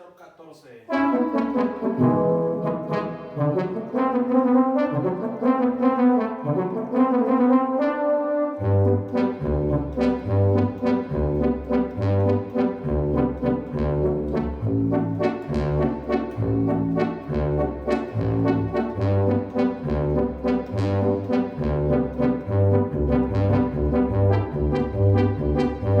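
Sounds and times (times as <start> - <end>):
synthesizer brass-like tune: 0.9 - 26.0
pulsing synth bass line: 21.9 - 26.0.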